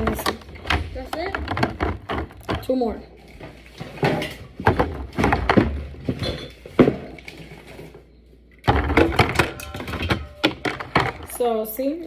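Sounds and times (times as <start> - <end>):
bottles clinking on a shelf: 3.7 - 7.2, 8.7 - 11.5.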